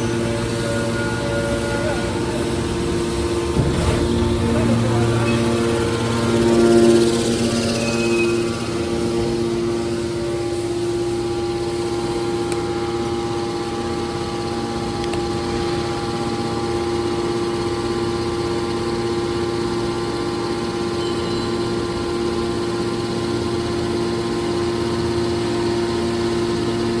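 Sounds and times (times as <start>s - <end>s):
scrap metal baler humming: 0.0s - 11.4s.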